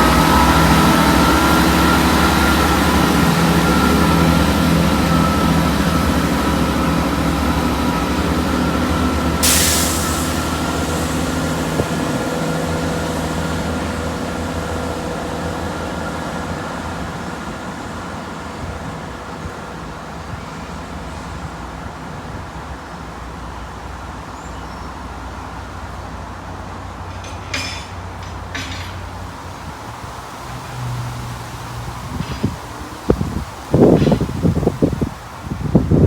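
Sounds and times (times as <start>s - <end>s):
diesel train engine droning: 0.0s - 36.0s
air hissing burst: 9.4s - 12.5s.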